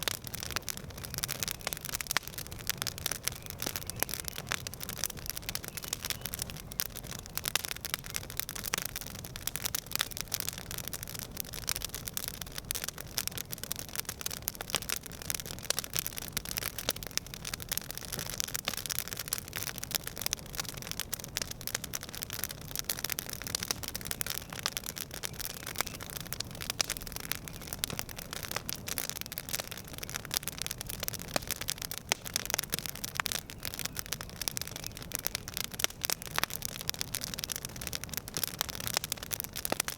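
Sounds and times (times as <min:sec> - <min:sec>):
burning wood hissing: 0:00.0 - 0:39.9
campfire crackling: 0:00.0 - 0:39.9.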